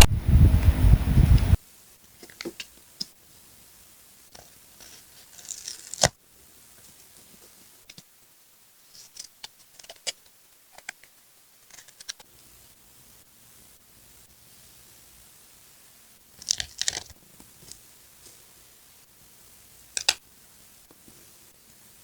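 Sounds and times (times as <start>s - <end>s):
paper rustling: 4.3s - 6.2s, 11.7s - 12.3s
scissors snipping: 4.8s - 6.2s, 20.0s - 20.2s.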